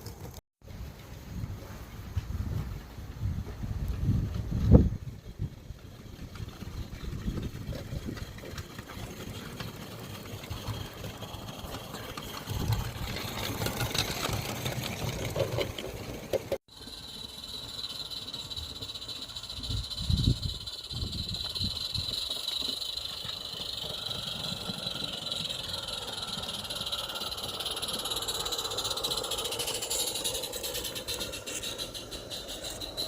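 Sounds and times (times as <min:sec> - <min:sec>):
steam locomotive exhaust chuffing: 0:01.8 - 0:33.0
steam hissing: 0:05.6 - 0:15.0, 0:16.7 - 0:33.0
steady high-pitched hiss: 0:16.7 - 0:33.0.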